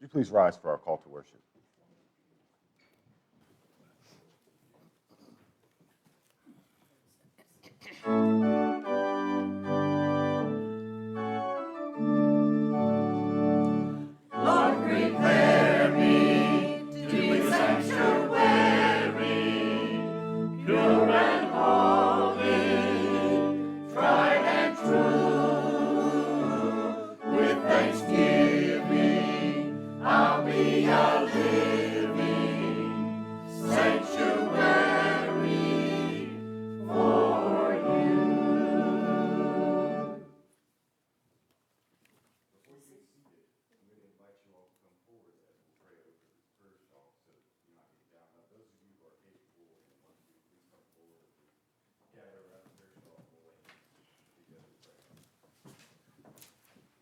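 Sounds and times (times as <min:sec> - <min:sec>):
organ chords: 0:08.0 - 0:40.4
group singing a hymn: 0:13.7 - 0:40.3.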